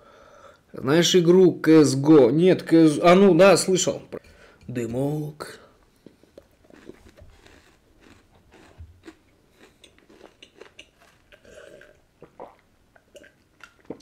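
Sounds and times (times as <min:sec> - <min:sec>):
faint chewing: 0:05.8 - 0:14.0
person swallowing a drink: 0:09.7 - 0:14.0.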